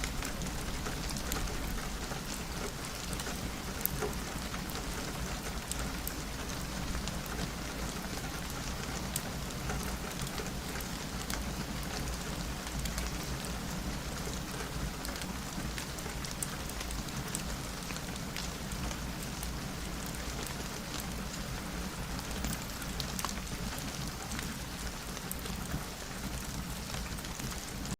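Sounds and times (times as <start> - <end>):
rain on a window: 0.0 - 27.9.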